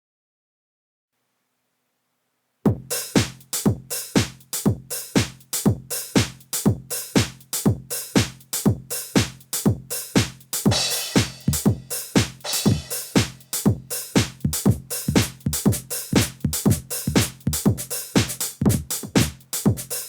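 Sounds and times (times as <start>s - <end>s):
drum machine kick beat: 2.7s - 20.0s
hi-hat-like hits: 2.7s - 20.0s.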